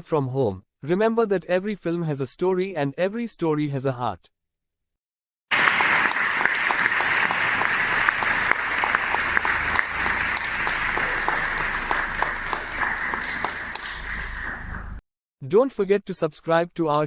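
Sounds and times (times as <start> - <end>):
audience applauding: 5.5 - 15.0.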